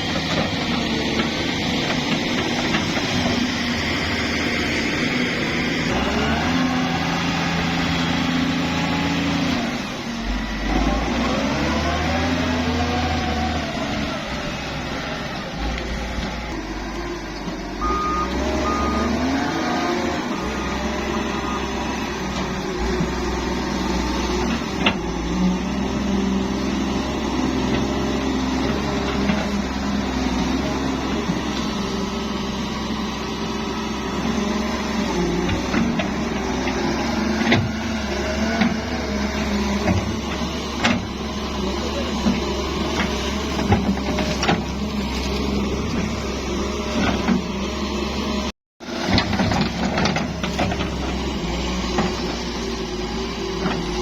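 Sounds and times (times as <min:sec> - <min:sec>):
heavy diesel machinery running: 0:00.0 - 0:54.0
reversing alarm beeping: 0:17.8 - 0:21.9.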